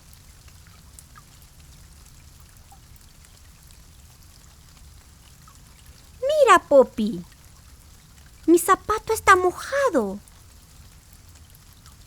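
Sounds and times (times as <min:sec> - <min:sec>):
light drip: 0:00.0 - 0:06.1
faint steady rain: 0:00.0 - 0:12.0.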